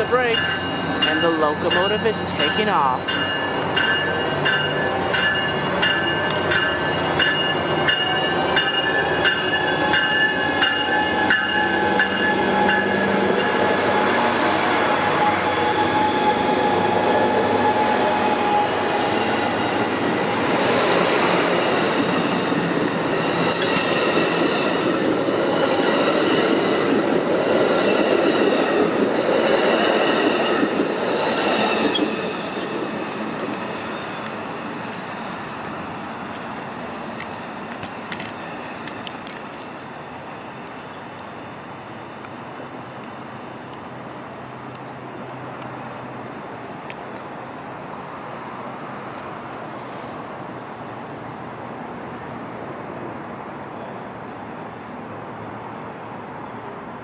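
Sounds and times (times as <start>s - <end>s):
diesel locomotive working: 0.0s - 44.5s
rumble of passing train cars: 0.0s - 57.0s
train wheel squeal: 3.3s - 14.0s, 15.0s - 19.9s, 21.7s - 34.3s
train wheels clickety-clack: 20.6s - 39.9s.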